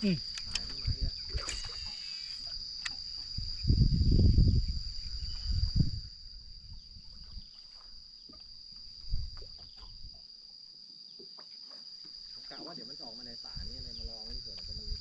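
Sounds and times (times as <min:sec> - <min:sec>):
high-pitched insect chorus: 0:00.0 - 0:15.0
low rumble of microphone handling: 0:03.3 - 0:07.5.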